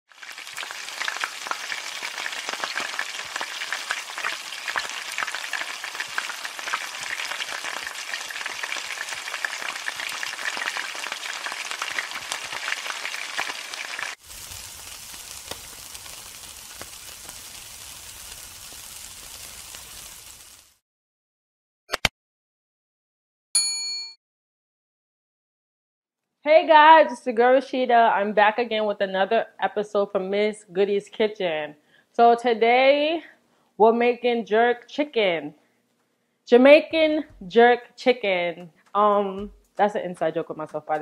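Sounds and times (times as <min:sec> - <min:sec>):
food sizzling in hot oil: 0:00.1 - 0:20.8.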